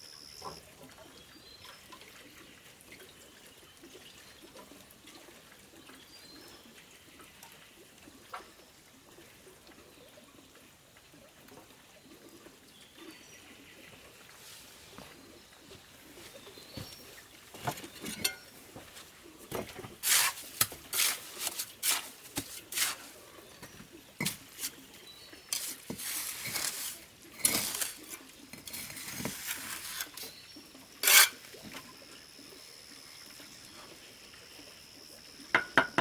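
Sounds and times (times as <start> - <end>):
hand tool scraping and clinking: 17.6 - 18.6, 19.9 - 24.8, 25.5 - 30.4, 31.0 - 31.5.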